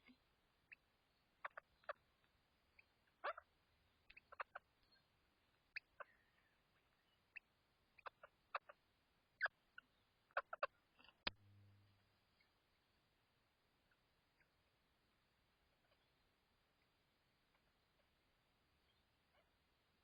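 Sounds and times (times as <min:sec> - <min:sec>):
low hum: 0:11.2 - 0:12.4.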